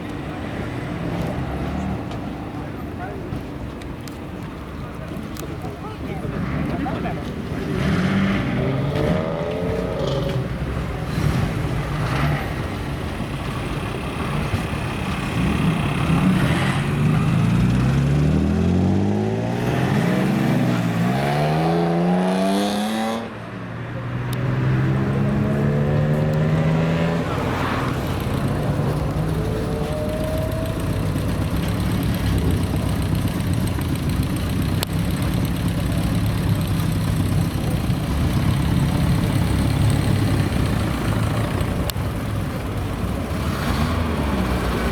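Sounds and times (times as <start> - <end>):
car engine accelerating: 14.2 - 23.3, 24.1 - 44.9.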